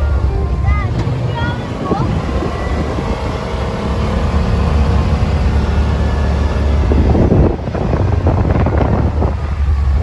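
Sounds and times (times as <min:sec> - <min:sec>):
vehicle engine running: 0:00.0 - 0:10.0
wind on microphone: 0:00.0 - 0:10.0.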